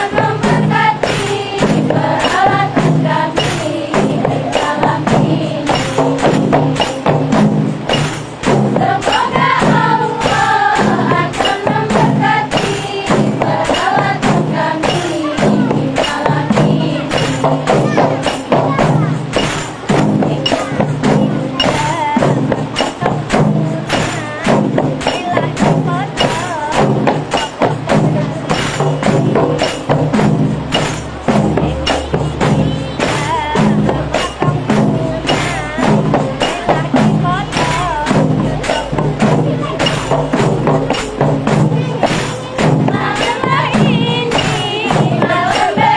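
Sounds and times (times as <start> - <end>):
frame drums and jingles: 0.0 - 45.9
group singing: 0.0 - 45.9
person singing ornamented melody: 8.8 - 19.1.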